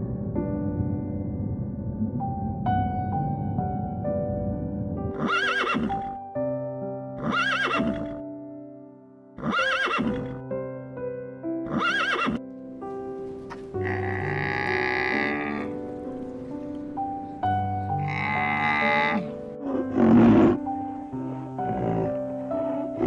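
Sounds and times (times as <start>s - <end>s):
soft background music: 0.0s - 23.0s
horse neighing: 5.1s - 6.2s, 7.2s - 8.2s, 9.4s - 10.4s, 11.7s - 12.4s, 13.8s - 15.8s, 18.0s - 23.0s
long animal call: 13.8s - 15.8s, 17.2s - 23.0s.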